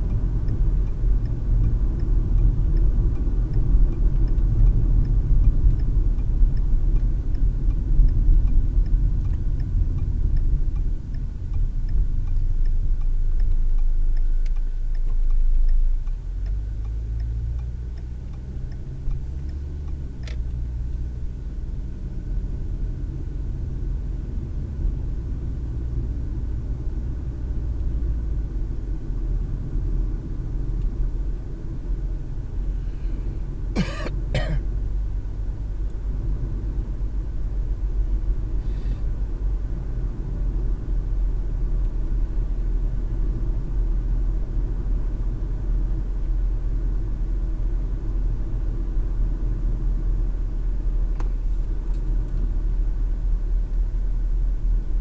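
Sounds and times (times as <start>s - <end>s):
faint regular ticking: 0.0s - 21.0s
car road noise rumble: 0.0s - 55.0s.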